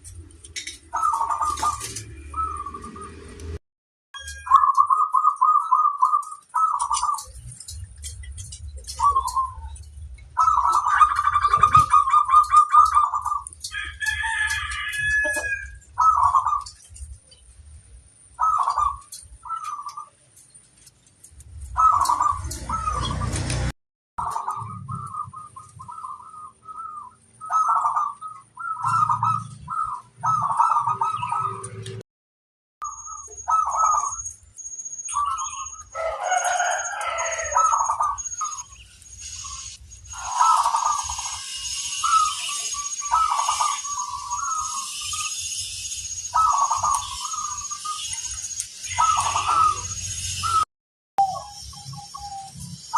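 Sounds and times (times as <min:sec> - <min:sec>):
dove cooing: 0:00.6 - 0:03.3, 0:04.5 - 0:13.5, 0:14.1 - 0:16.9, 0:18.4 - 0:20.2, 0:21.7 - 0:23.5, 0:24.2 - 0:31.8, 0:33.4 - 0:34.3, 0:35.2 - 0:38.6, 0:40.1 - 0:45.0, 0:46.4 - 0:47.7, 0:48.9 - 0:49.9
faint high chirping: 0:32.8 - 0:52.9.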